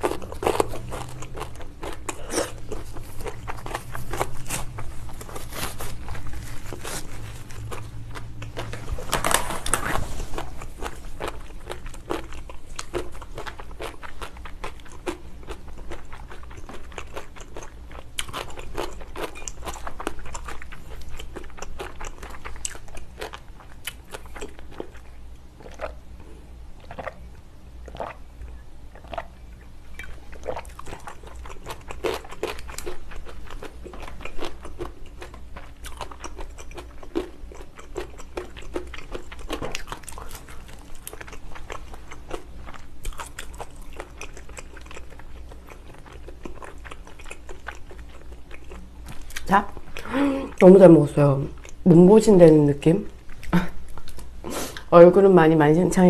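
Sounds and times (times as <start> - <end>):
wet chewing clicks and smacks: 10.8 - 50.0.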